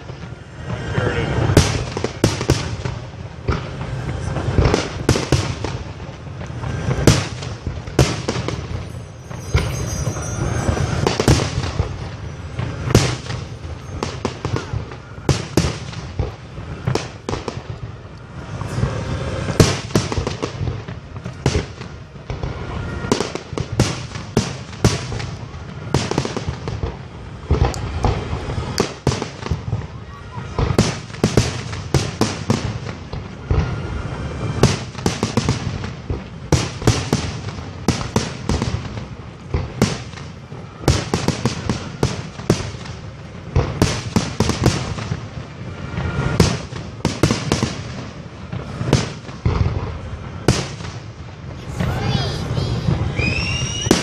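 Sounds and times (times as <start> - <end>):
fireworks bursting with sharp bangs: 0.0 - 54.0
low rumble: 2.8 - 15.3.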